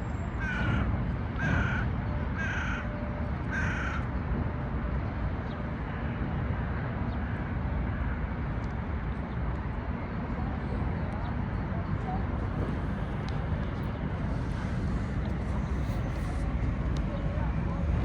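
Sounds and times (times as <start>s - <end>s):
low background rumble: 0.0s - 18.0s
harsh caw-like bird calls: 0.4s - 4.1s.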